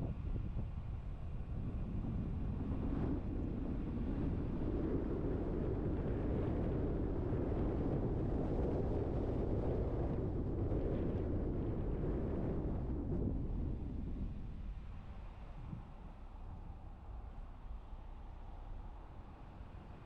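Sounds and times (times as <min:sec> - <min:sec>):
car driving rumble: 0:10.8 - 0:20.0.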